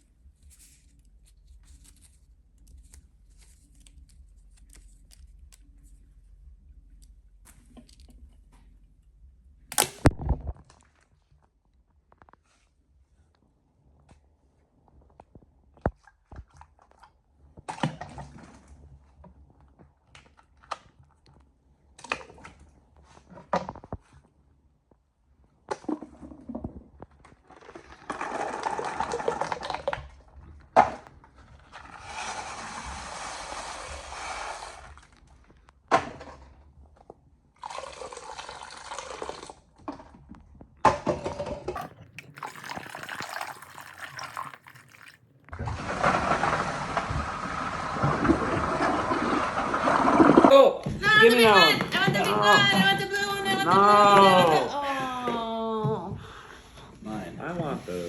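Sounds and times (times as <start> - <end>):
toilet flushing water: 41.8 - 50.4.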